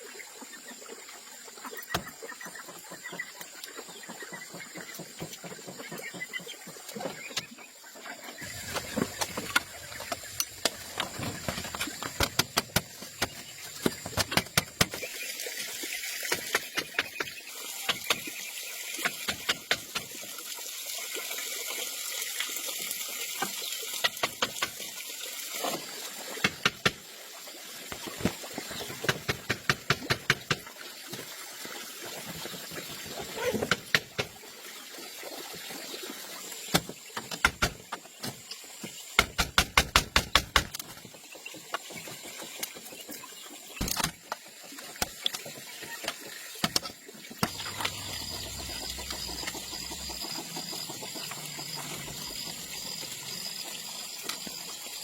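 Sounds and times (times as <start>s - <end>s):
water running and splashing: 0.0s - 55.0s
sharp clicks and knocks: 8.7s - 15.1s, 16.3s - 18.4s, 19.0s - 20.2s, 23.4s - 24.8s, 26.4s - 27.0s, 27.9s - 30.7s, 33.5s - 34.4s, 36.7s - 38.5s, 39.2s - 41.1s, 43.8s - 44.4s, 46.1s - 48.0s.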